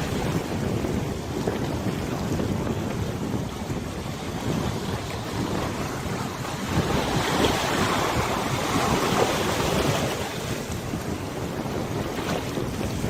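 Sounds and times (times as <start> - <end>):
river waves splashing: 0.0 - 13.0
wind buffeting microphone: 0.0 - 13.0.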